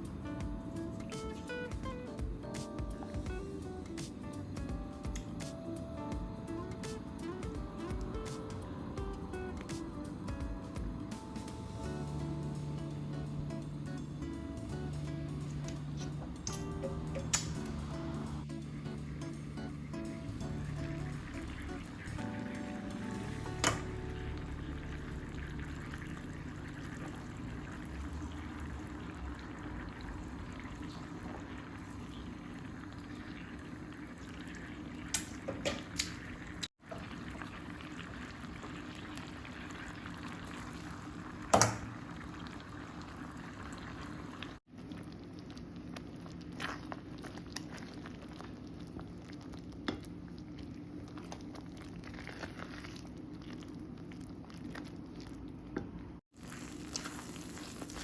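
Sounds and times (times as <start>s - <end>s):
food bubbling in a pot: 11.9s - 58.0s.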